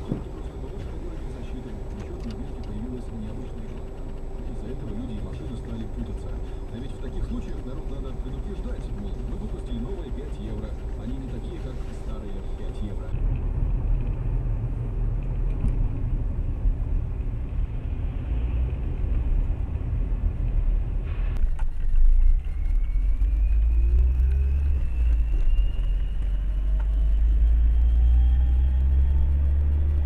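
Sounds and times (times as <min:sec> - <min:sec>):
car engine and road rumble: 0:00.0 - 0:30.0
thin rising whine: 0:21.0 - 0:30.0.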